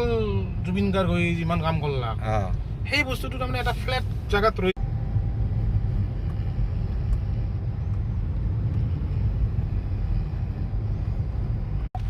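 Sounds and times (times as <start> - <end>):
car tyre and engine rumble: 0.0 - 12.0.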